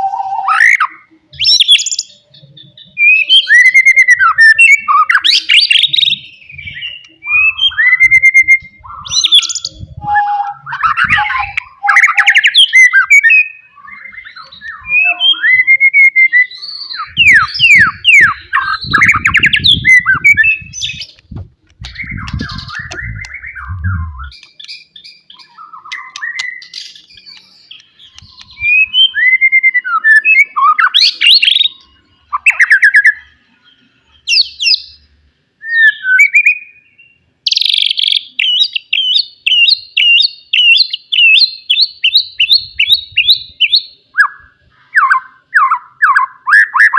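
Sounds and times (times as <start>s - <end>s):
bird singing whistled phrases: 0.0s - 21.1s, 21.9s - 33.4s, 35.6s - 46.9s
low thudding noise: 21.2s - 24.3s.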